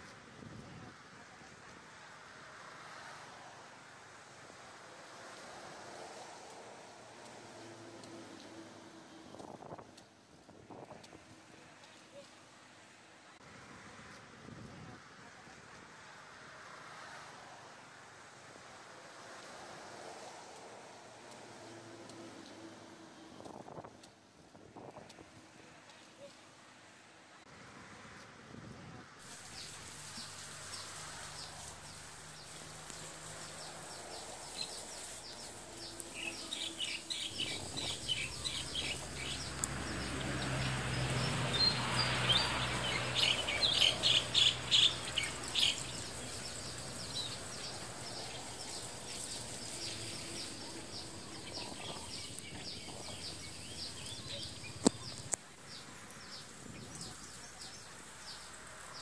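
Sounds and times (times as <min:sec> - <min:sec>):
birds chirping: 0:29.4 - 0:59.0.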